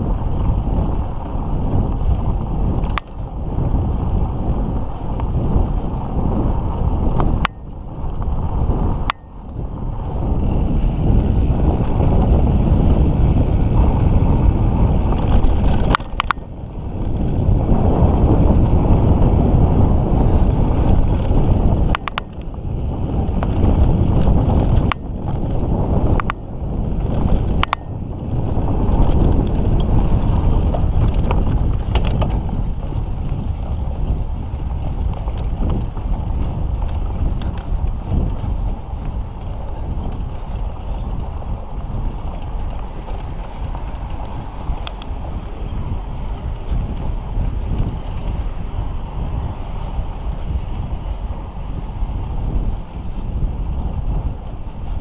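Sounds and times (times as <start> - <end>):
wind buffeting microphone: 0.0 - 55.0
bike clicks and knocks: 1.2 - 3.3, 7.2 - 8.4, 9.0 - 48.6
tyres rumbling on dirt: 10.4 - 36.2.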